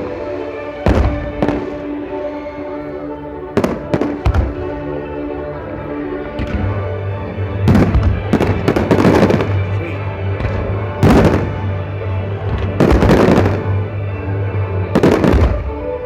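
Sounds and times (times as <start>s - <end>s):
fireworks bursting: 0.0s - 2.5s, 3.6s - 5.0s, 6.2s - 13.9s, 14.9s - 16.0s.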